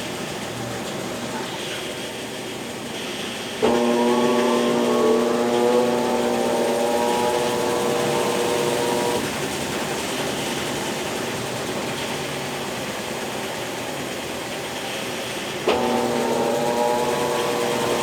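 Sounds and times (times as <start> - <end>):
rushing noise from washing tub: 0.0 - 18.0
washing machine motor whining: 3.5 - 13.9, 15.5 - 18.0.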